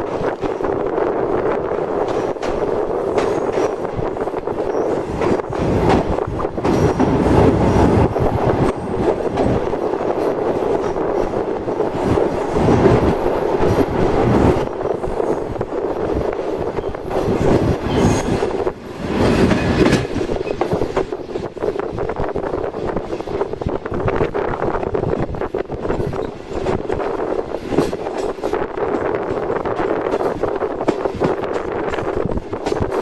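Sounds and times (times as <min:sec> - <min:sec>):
train coach rumble and rattle: 0:00.0 - 0:33.0
wheels clattering on track: 0:01.9 - 0:14.7, 0:15.5 - 0:23.4.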